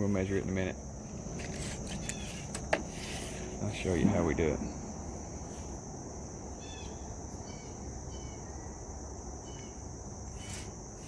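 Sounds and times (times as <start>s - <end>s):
low background rumble: 3.5s - 8.0s.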